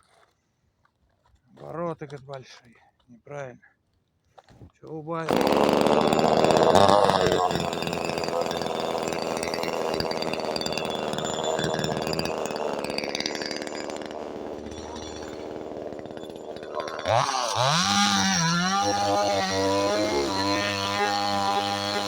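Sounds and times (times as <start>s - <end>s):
chainsaw engine running: 5.3s - 22.0s.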